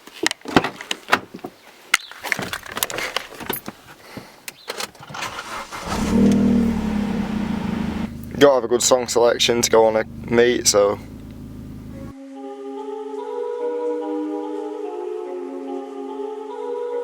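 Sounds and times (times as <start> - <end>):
car engine starting and idling: 5.0 - 12.1.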